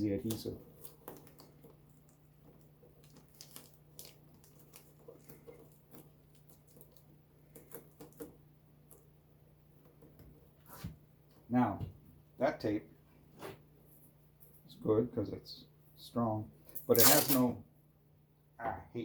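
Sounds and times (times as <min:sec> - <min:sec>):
tape crackling as pulled: 0:00.2 - 0:09.1, 0:16.7 - 0:17.5.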